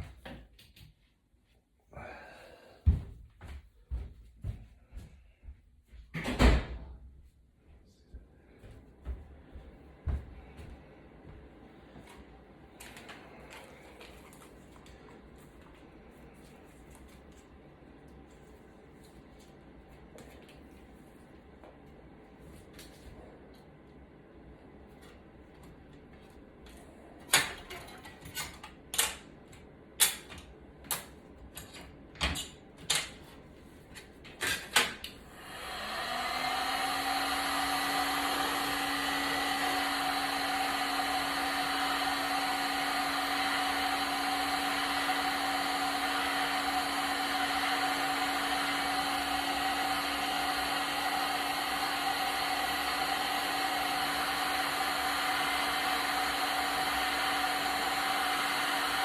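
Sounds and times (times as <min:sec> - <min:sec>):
blower motor whooshing hum: 0:35.2 - 0:59.0.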